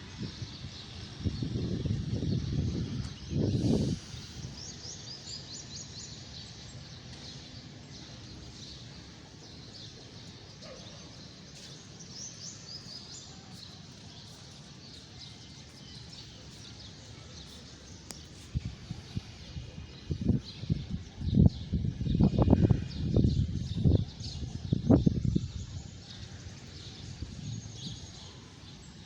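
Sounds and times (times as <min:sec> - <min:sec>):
small birds chirping: 0:00.4 - 0:29.0
low background noise: 0:03.8 - 0:21.3.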